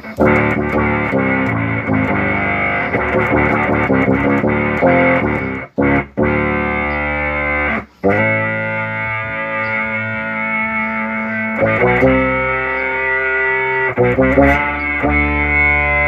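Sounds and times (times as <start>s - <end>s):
synthesized bass notes: 0.0s - 16.0s.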